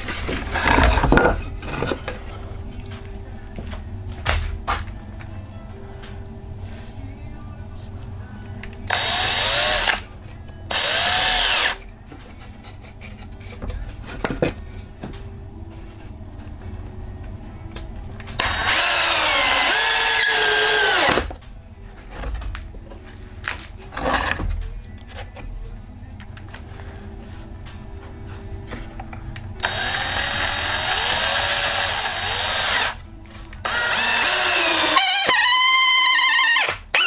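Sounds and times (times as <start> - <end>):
knocks and clatter of handling: 0.0 - 5.0, 12.0 - 15.3, 21.2 - 25.6
power drill drilling into wood: 8.9 - 10.0, 10.7 - 11.8, 18.4 - 21.2, 29.6 - 33.0, 33.6 - 37.0.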